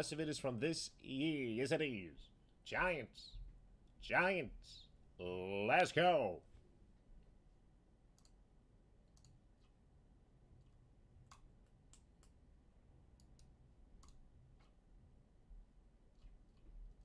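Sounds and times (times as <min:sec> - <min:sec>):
faint irregular clicks: 0:08.1 - 0:08.4, 0:09.0 - 0:09.8, 0:10.6 - 0:12.4, 0:13.1 - 0:14.8.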